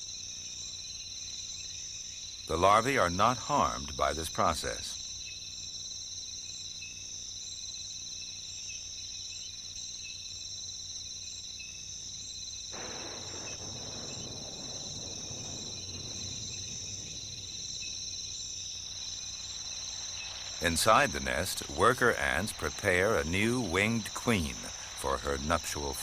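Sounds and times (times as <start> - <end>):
crickets trilling: 0.0 - 26.0
soft rustling hiss: 12.8 - 26.0.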